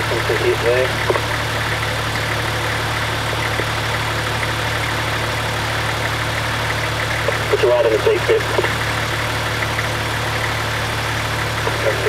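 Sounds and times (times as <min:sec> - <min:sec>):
vehicle engine at low revs: 0:00.0 - 0:12.0.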